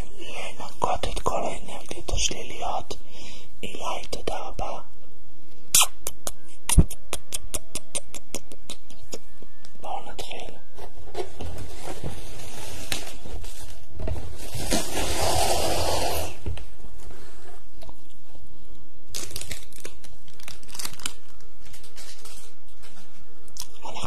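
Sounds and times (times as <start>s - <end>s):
crinkling against microphone: 19.1s - 23.3s.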